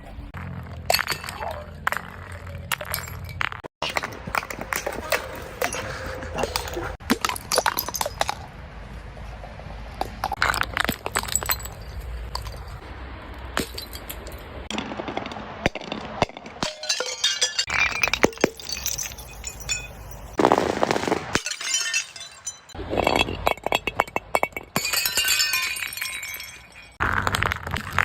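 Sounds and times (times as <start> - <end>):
glass breaking and clinking: 0.9 - 8.4, 10.3 - 12.8, 13.6 - 28.0
glass crunching: 10.3 - 12.8, 13.6 - 28.0.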